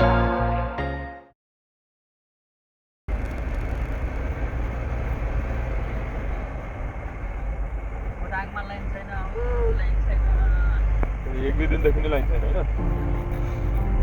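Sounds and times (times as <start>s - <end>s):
background music: 0.0s - 1.3s, 12.3s - 14.0s
vehicle engine and road rumble: 3.1s - 14.0s.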